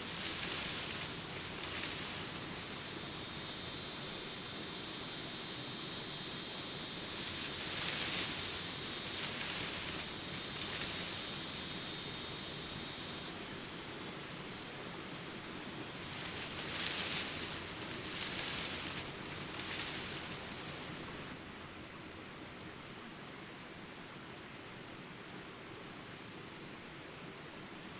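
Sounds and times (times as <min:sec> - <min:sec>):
rustling leaves and branches: 0:00.0 - 0:22.0
crickets chirping: 0:00.0 - 0:24.4.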